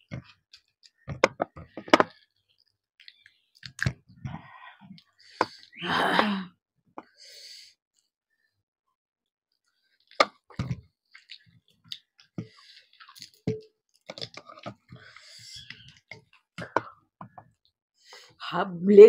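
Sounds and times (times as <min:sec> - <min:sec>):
chewing with wet mouth smacks: 0:11.1 - 0:14.6.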